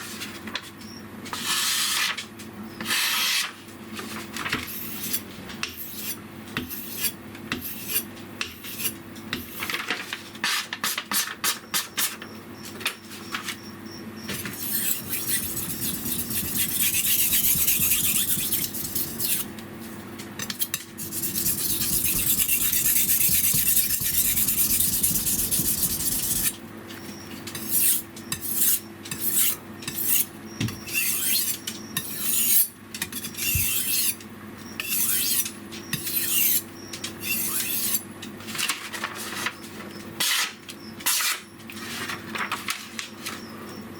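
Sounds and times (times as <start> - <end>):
knife scraping on whetstone: 4.6 - 9.7, 14.5 - 19.5, 20.4 - 26.6, 27.5 - 30.3, 30.9 - 34.2, 34.8 - 38.0.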